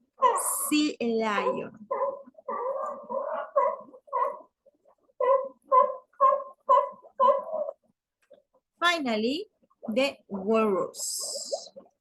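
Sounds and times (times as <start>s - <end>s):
sea lion barking: 1.4s - 4.6s, 5.2s - 7.8s.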